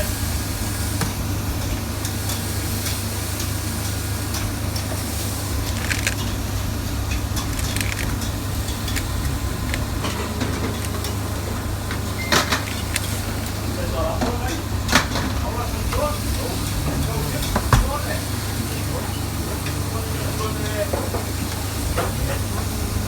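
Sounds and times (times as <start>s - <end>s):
low machine hum: 0.0s - 23.0s
knocks and clicks of food handling: 11.9s - 13.2s.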